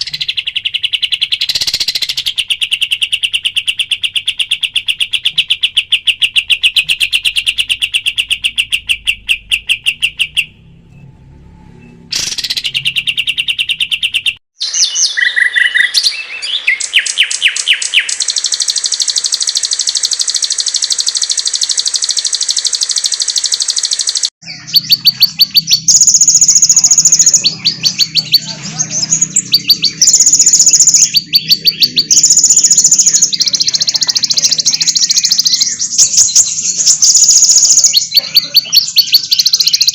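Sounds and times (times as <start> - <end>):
bird trills: 0.0 - 10.6, 12.1 - 39.9
shrill bird phrases: 0.0 - 10.6, 12.1 - 39.9
high bird chirps: 0.0 - 11.1, 11.7 - 39.9
high buzzing bird trill: 12.1 - 39.9.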